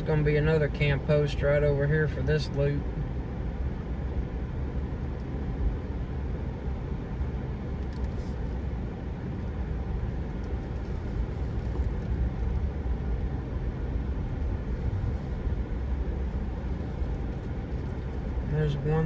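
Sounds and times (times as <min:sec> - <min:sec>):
car engine and tyre noise: 0:00.0 - 0:19.0.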